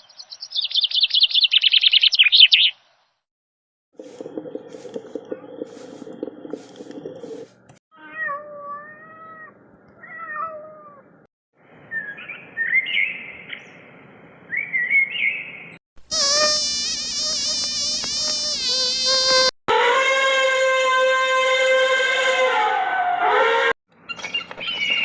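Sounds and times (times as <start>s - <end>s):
cat meowing: 8.0s - 11.0s
high chirping mews: 16.0s - 19.5s.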